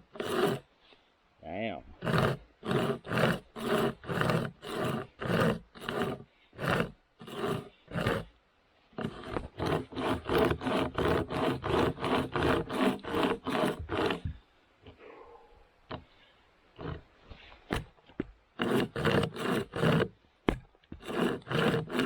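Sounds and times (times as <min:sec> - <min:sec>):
hand chainsaw rasping through wood: 0:00.0 - 0:00.7, 0:02.0 - 0:08.3, 0:09.0 - 0:14.4, 0:16.8 - 0:18.0, 0:18.6 - 0:20.2, 0:20.9 - 0:22.0.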